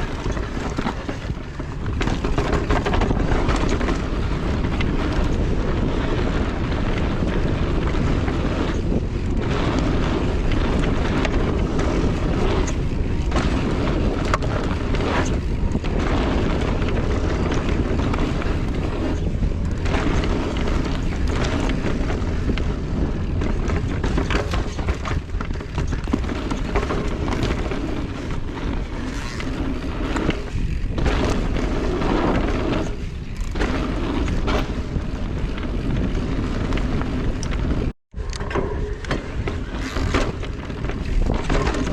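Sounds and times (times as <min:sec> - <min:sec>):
bike trail rumble: 0:00.0 - 0:41.9
wind buffeting microphone: 0:00.0 - 0:41.9.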